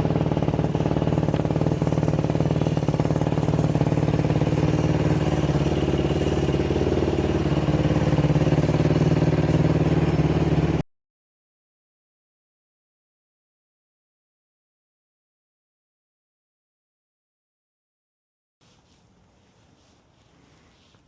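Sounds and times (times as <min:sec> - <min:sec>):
atv engine running: 0:00.0 - 0:10.8.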